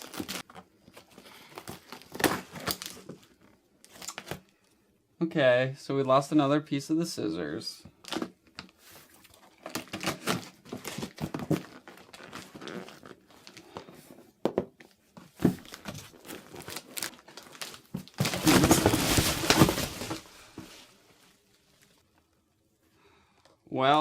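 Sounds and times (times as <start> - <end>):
cardboard rustling and crinkling: 0.0 - 4.4, 8.0 - 22.0
cardboard tearing: 15.4 - 20.6.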